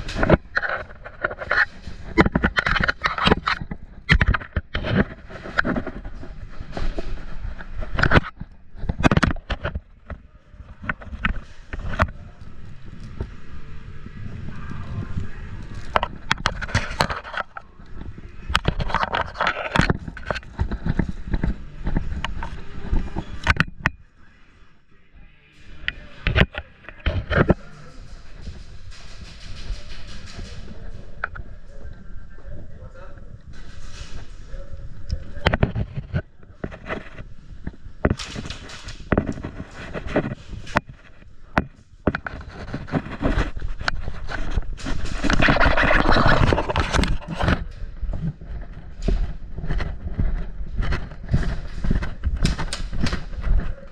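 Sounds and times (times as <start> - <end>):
sharp clicks and knocks: 0.0 - 13.6, 35.1 - 53.7
gear scraping against camera: 0.0 - 24.1, 25.5 - 53.9
running footsteps: 25.7 - 32.3.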